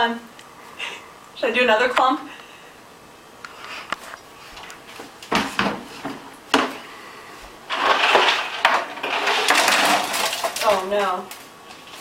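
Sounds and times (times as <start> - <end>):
dry ice clattering into sink: 7.7 - 12.0.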